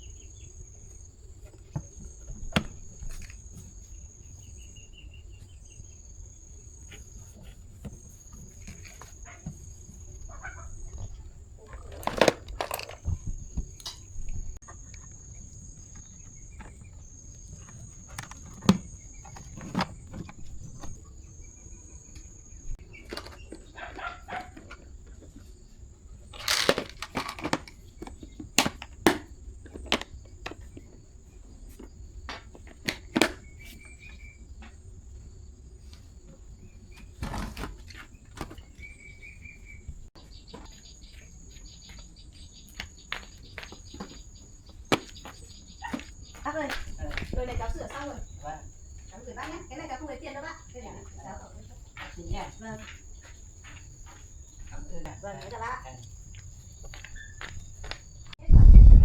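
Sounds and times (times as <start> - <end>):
crickets trilling: 0.0 - 58.4
objects being handled: 6.6 - 21.2, 22.2 - 34.0.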